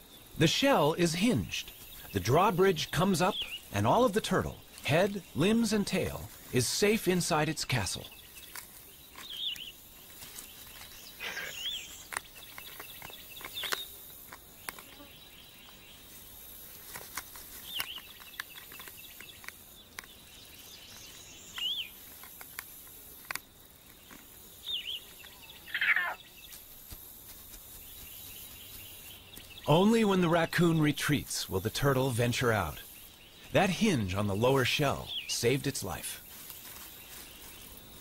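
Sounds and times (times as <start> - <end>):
bird chirping: 0.0 - 16.4, 17.5 - 23.0, 23.8 - 26.8, 27.6 - 38.0
faint steady hiss: 0.0 - 38.0
falling bird call: 24.8 - 26.3.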